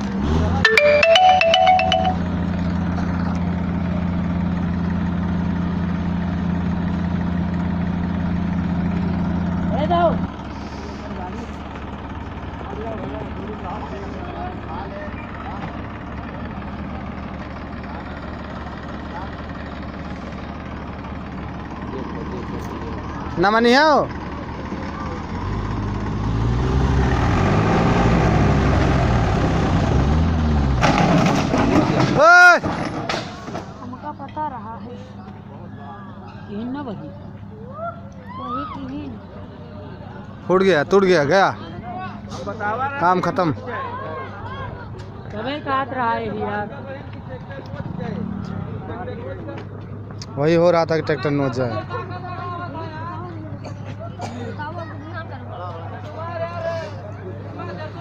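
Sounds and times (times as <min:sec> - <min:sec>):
tractor diesel engine idling: 0:00.6 - 0:26.2.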